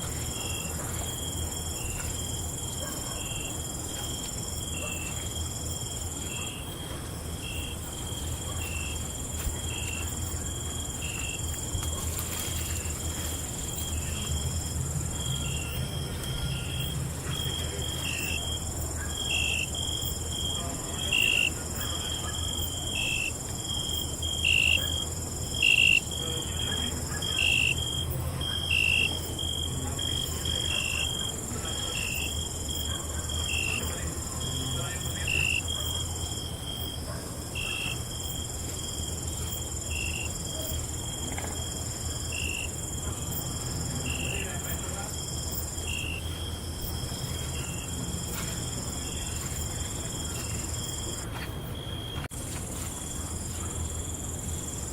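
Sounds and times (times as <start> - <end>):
crickets chirping: 0.0 - 54.9.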